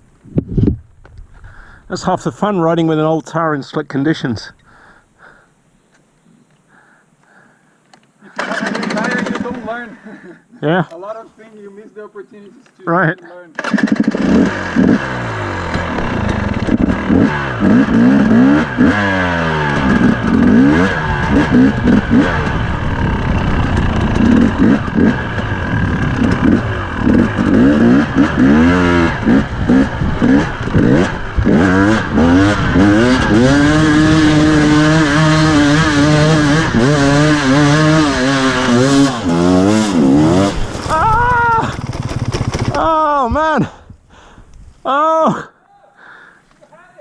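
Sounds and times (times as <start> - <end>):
dirt bike engine revving: 8.3 - 9.8, 13.6 - 43.2.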